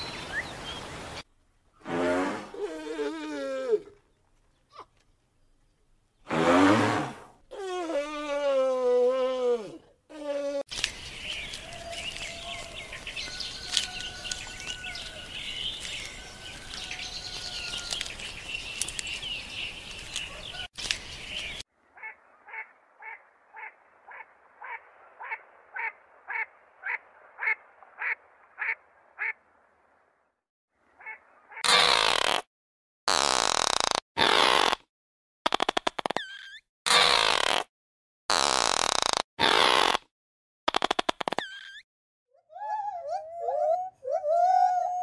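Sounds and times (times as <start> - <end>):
birds chirping and calling: 10.7 - 21.6.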